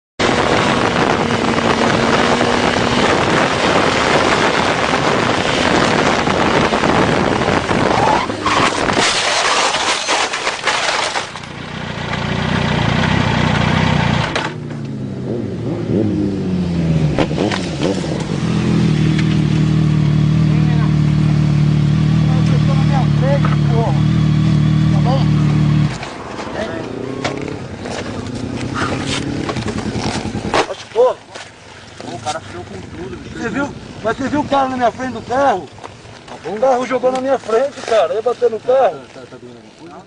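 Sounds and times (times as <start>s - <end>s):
motorcycle riding at speed: 0.2s - 9.1s, 11.3s - 40.0s
heavy wind: 0.2s - 10.6s
engines revving: 0.2s - 31.2s, 31.8s - 39.9s
road noise: 0.2s - 40.0s
motorcycle crash scraping and knocks: 8.3s - 11.6s, 25.8s - 32.3s.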